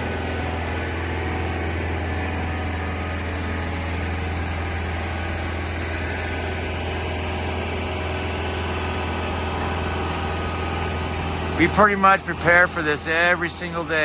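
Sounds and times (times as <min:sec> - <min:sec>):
heavy equipment engine idling: 0:00.0 - 0:14.0.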